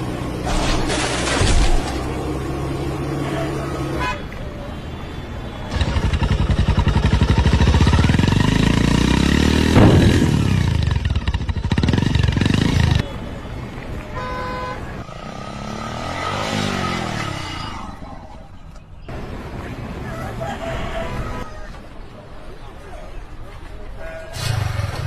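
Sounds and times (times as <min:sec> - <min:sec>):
motorcycle engine revving: 0:05.7 - 0:13.1, 0:15.0 - 0:18.0.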